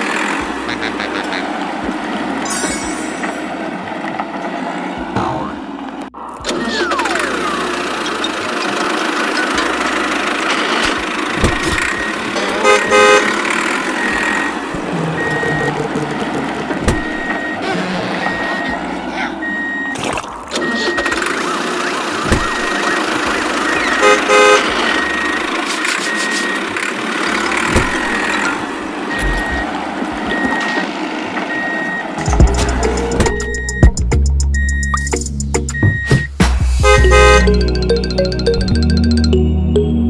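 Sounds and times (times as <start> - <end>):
heavy vehicle engines running: 0.0 - 40.0
horn honk: 11.8 - 19.4, 23.7 - 25.5, 36.8 - 37.7
reversing alarm beeps: 14.0 - 15.8, 17.0 - 17.6, 18.2 - 18.8, 19.4 - 26.7, 29.1 - 29.7, 30.3 - 30.8, 31.5 - 32.4, 33.2 - 36.4.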